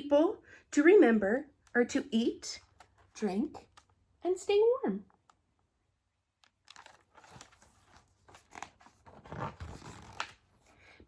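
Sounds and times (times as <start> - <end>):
paper pages rustling: 6.4 - 10.8.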